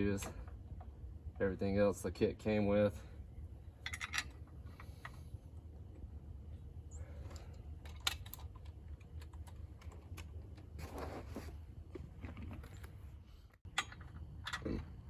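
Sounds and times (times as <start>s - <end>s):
low steady hum: 0.0s - 15.0s
metal tools clicking and clattering: 3.8s - 5.1s.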